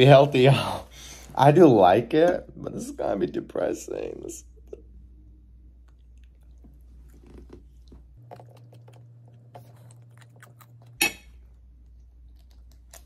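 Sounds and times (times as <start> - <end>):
faint steady hum: 0.0 - 13.0
person chewing wetly: 5.6 - 13.0.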